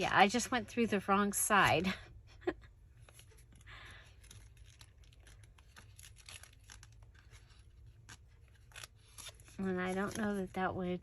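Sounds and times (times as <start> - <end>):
soft paper rustle: 2.9 - 11.0.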